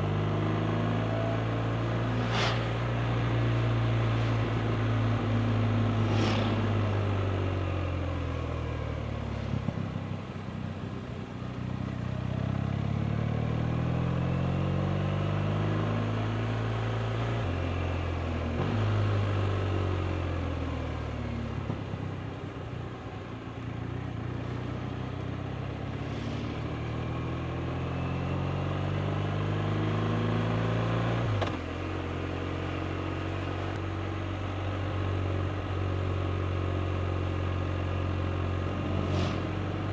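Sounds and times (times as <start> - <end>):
motorcycle engine revving: 0.0 - 8.8, 38.3 - 39.9.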